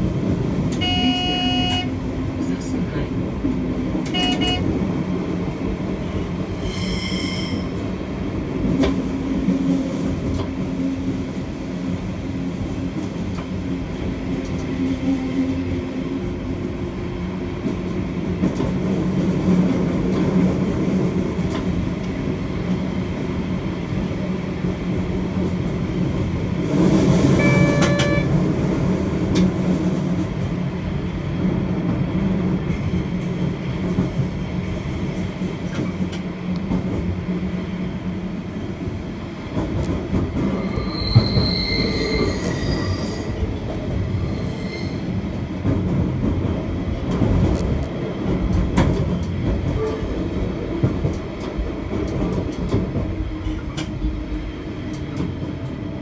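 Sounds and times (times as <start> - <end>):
train wheels rumbling on rails: 0.0 - 56.0
brief high tones: 27.4 - 28.3.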